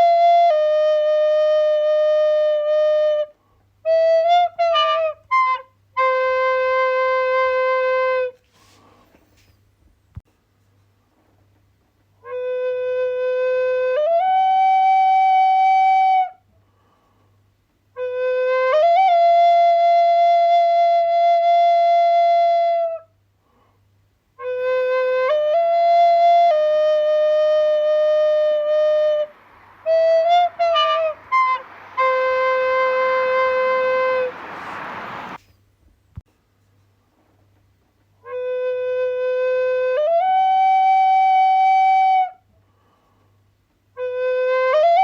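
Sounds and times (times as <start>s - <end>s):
solo wind instrument playing: 0.0s - 8.4s, 12.2s - 16.4s, 17.9s - 23.1s, 24.4s - 35.4s, 38.2s - 42.4s, 44.0s - 45.0s
breathy rushing noise: 28.3s - 35.5s.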